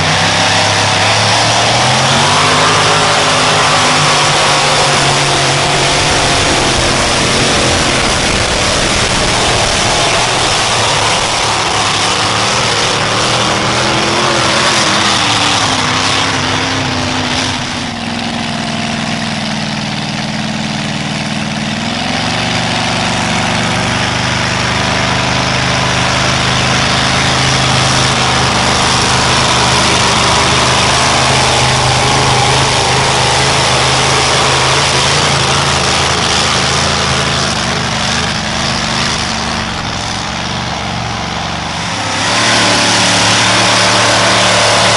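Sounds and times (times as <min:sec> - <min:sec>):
loud truck engine running: 0:00.0 - 0:44.9.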